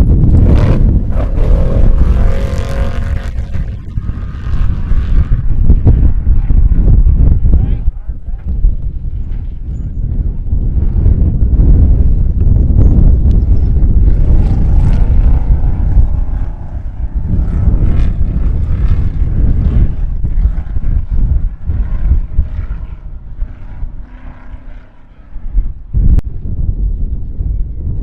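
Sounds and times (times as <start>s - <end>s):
vehicle engine rumbling past: 0.0s - 6.0s
wind on microphone: 0.0s - 28.0s.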